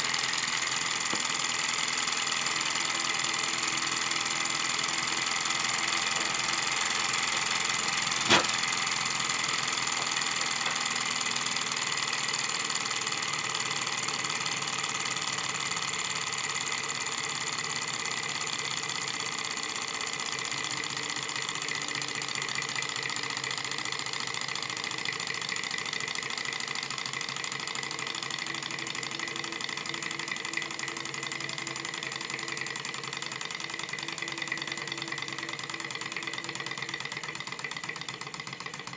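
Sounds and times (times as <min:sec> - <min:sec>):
sharp click: 0:08.2 - 0:08.6.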